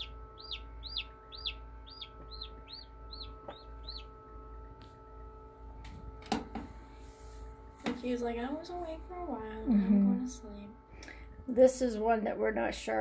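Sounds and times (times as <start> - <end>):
chick peeping: 0.0 - 4.1.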